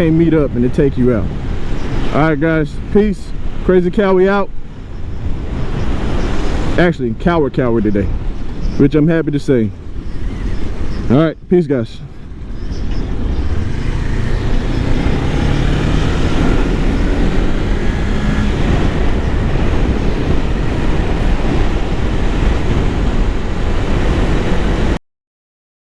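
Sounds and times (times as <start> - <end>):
wind and road noise: 0.0 - 25.0
motorcycle engine running: 12.3 - 22.8.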